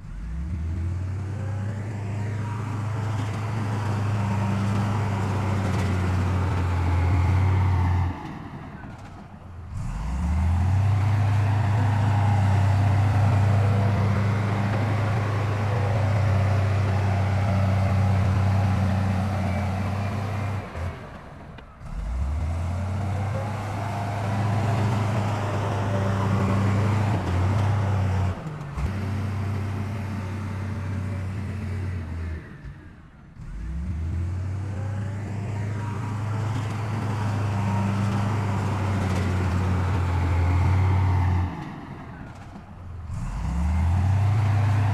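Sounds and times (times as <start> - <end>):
heavy diesel engines droning: 0.0 - 44.9.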